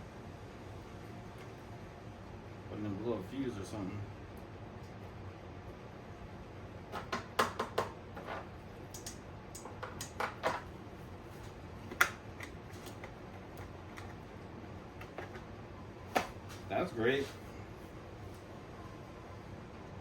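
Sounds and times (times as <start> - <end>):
clicks and taps of tools: 8.9 - 10.7.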